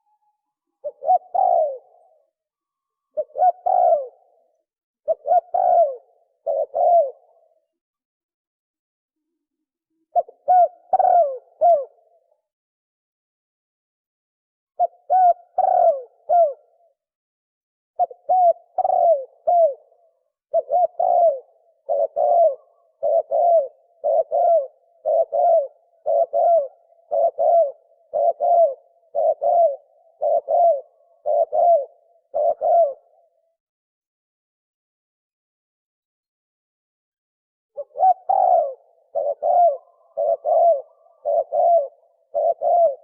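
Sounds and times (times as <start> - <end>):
dove cooing: 0.0 - 2.4, 3.1 - 7.7, 10.0 - 12.3, 14.8 - 16.9, 18.0 - 33.5, 37.8 - 43.0.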